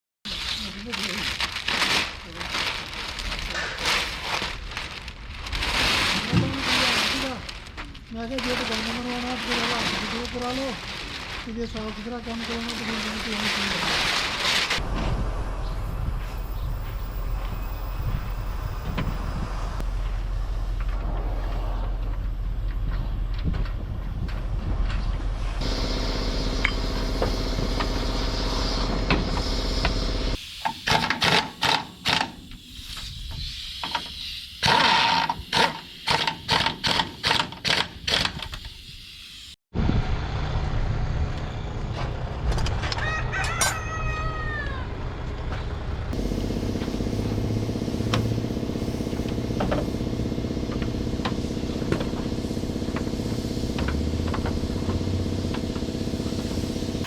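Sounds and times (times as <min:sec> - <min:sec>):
rooster crowing: 0:42.8 - 0:45.1.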